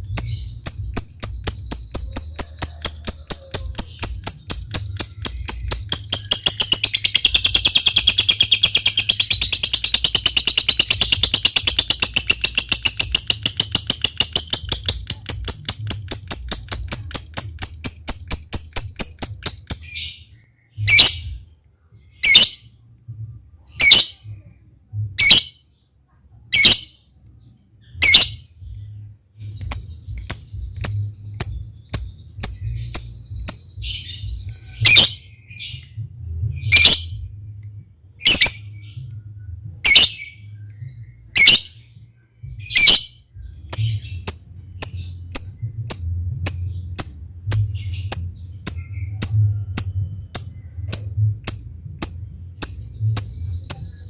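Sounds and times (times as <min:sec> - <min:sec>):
lovebird ticking calls: 0:00.0 - 0:20.0, 0:29.4 - 0:35.1, 0:43.6 - 0:54.0
faint low hum: 0:00.0 - 0:54.0
lovebird shrill calls: 0:00.2 - 0:20.1, 0:28.0 - 0:28.4.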